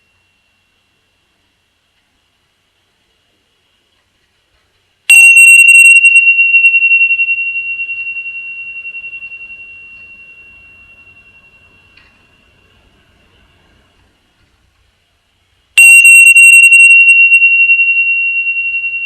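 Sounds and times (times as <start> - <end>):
meditation bell ringing: 0.0 - 1.8, 5.3 - 14.3, 16.2 - 19.0.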